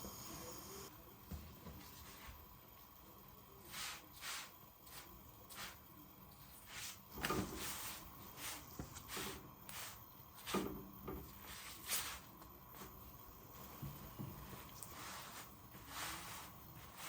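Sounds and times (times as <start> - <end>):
rubbing strokes: 3.6 - 5.9, 6.5 - 10.7, 14.4 - 17.0.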